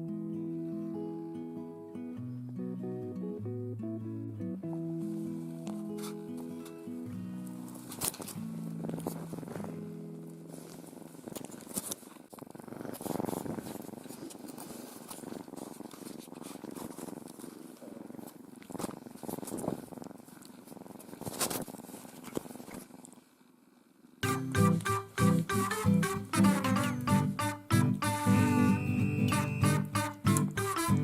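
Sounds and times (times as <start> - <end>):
faint rustles: 4.6 - 23.6
kitten purring: 4.7 - 31.0.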